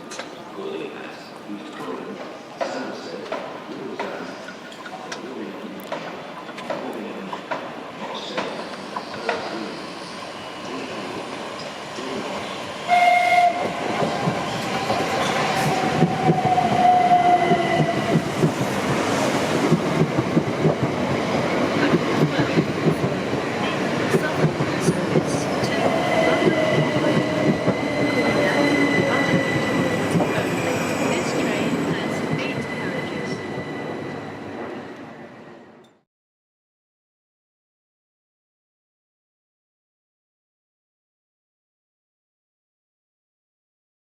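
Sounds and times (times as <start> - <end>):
train wheels clattering over rails: 13.9 - 33.7.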